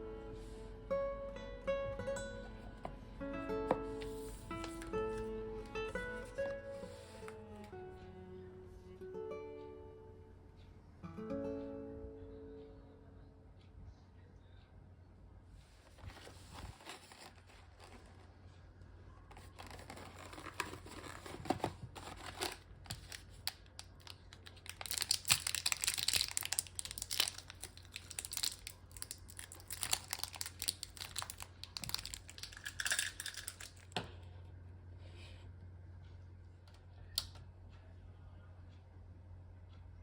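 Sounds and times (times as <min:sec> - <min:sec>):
faint low hum: 0:00.0 - 0:40.0
wrapping material crinkling: 0:15.8 - 0:18.3, 0:19.3 - 0:33.9.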